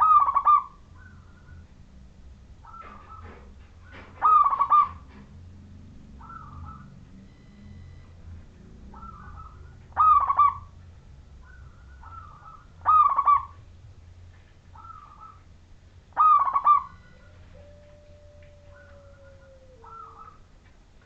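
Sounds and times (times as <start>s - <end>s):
dove cooing: 0.0s - 1.6s, 2.6s - 5.2s, 6.2s - 7.0s, 8.8s - 10.8s, 11.4s - 13.6s, 14.8s - 15.5s, 16.2s - 20.5s.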